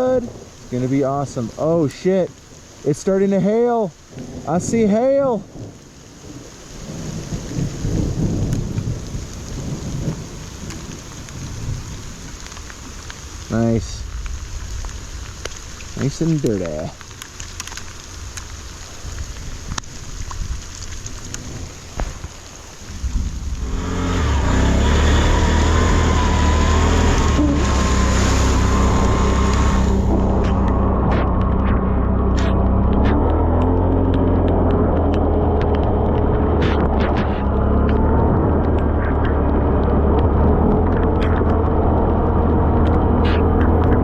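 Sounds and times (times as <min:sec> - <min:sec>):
steady rain: 0:00.0 - 0:44.0
thunder rumbling: 0:04.1 - 0:17.0, 0:18.3 - 0:44.0
off-road vehicle engine running: 0:22.9 - 0:44.0.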